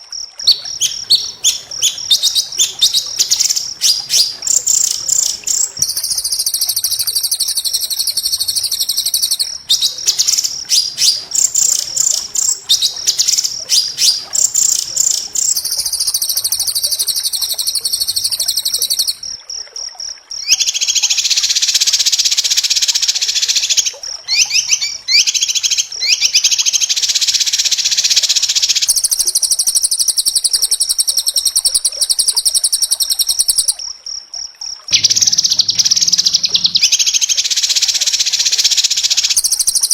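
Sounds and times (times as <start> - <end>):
bird singing rapid trills: 0.0 - 19.3, 20.4 - 33.8, 34.9 - 39.9
lower bird trilling: 0.5 - 19.2, 24.3 - 26.4, 34.9 - 37.5.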